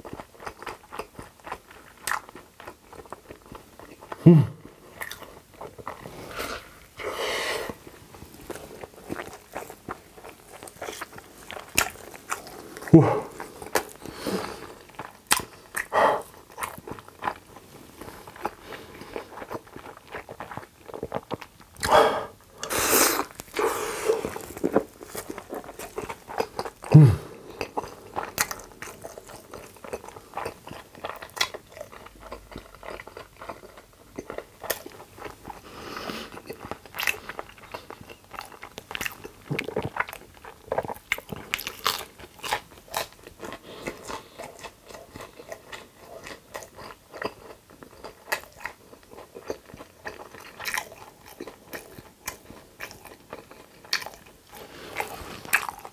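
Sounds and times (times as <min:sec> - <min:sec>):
wet chewing and lip smacks: 0:08.4 - 0:14.1, 0:14.7 - 0:26.9, 0:36.3 - 0:55.9.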